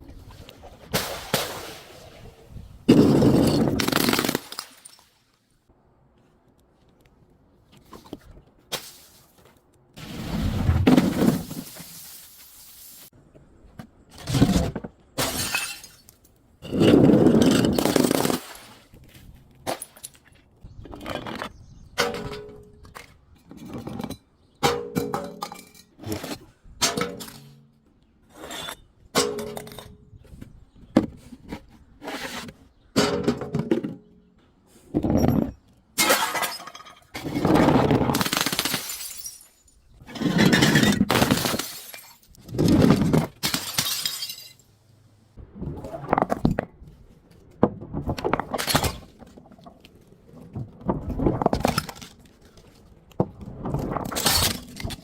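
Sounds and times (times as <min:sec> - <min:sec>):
glass bottles shattering: 0:02.9 - 0:05.1, 0:10.9 - 0:12.9, 0:15.2 - 0:16.8, 0:36.0 - 0:37.2, 0:38.1 - 0:42.3, 0:43.3 - 0:44.7, 0:54.1 - 0:55.0.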